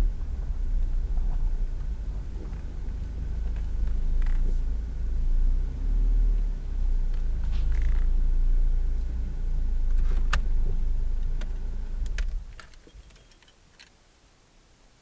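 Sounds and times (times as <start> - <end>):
car engine running: 0.0 - 13.2
keys jingling: 12.6 - 13.6.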